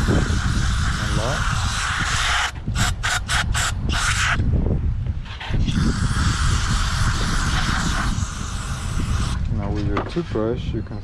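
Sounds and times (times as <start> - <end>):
aerosol can spraying: 0.0 - 4.4, 5.6 - 9.4.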